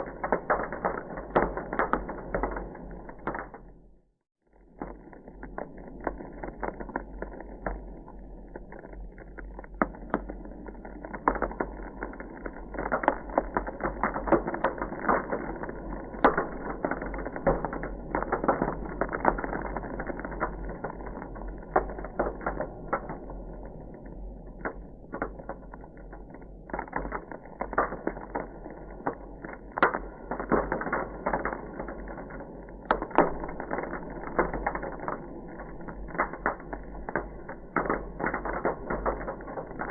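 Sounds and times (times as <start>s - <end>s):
ice crackling: 32.9s - 39.9s.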